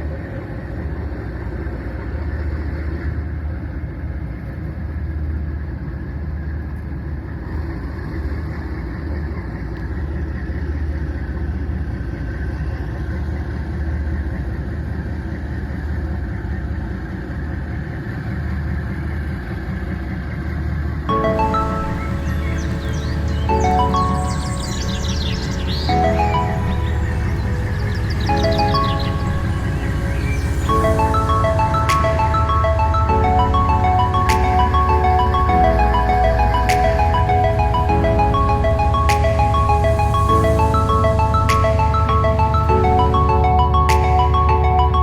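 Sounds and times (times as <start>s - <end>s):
ferry engines droning: 21.1s - 45.0s.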